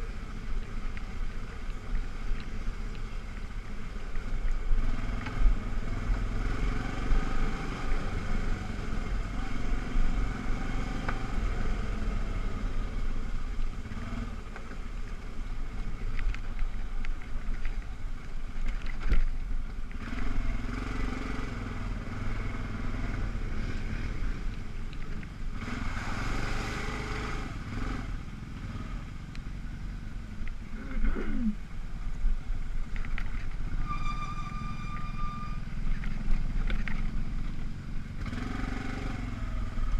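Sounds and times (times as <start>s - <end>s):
atv engine running: 35.6s - 39.9s.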